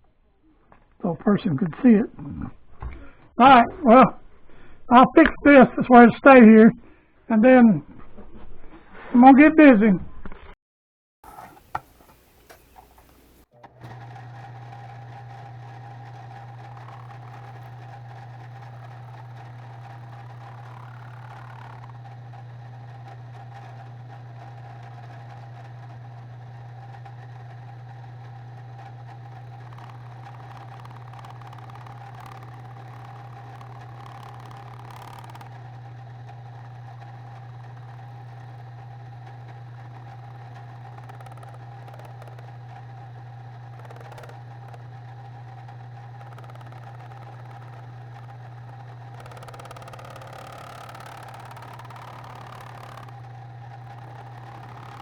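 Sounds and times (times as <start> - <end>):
milling machine motor running: 11.2 - 55.0.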